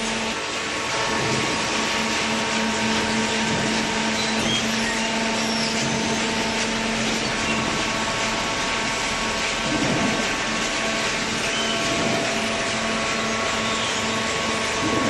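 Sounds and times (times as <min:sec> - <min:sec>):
hydraulic baler humming and hissing: 0:00.0 - 0:15.0.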